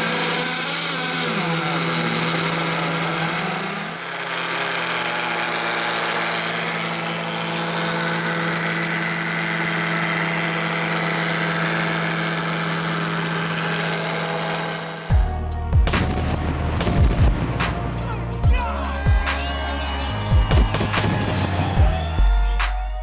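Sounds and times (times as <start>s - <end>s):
model engine running: 0.0s - 21.8s
thumping beats: 15.1s - 23.0s.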